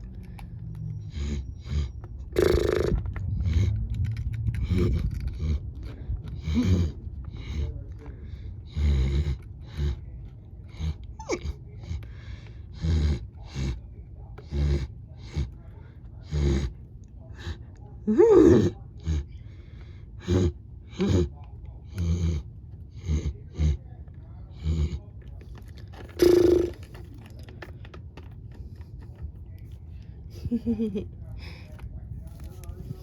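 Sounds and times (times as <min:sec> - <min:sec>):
horse snorts and puffs: 0:01.2 - 0:03.9, 0:04.6 - 0:07.8, 0:26.1 - 0:27.1.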